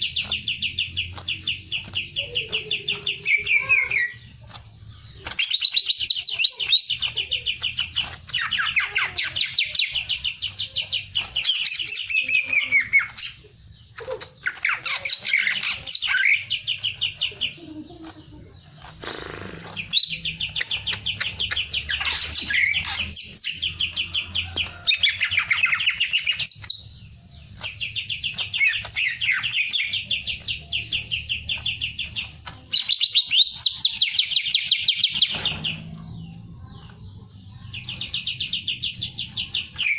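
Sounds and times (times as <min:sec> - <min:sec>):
songbird trilling: 0:04.9 - 0:36.0.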